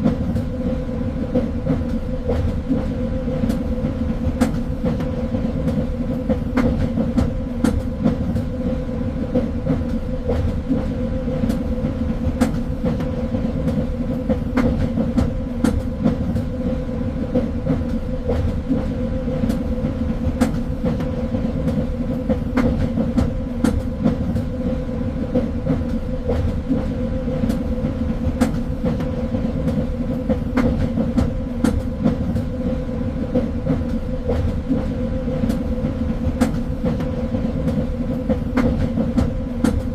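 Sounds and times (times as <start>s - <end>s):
train rumble: 0.0s - 39.9s.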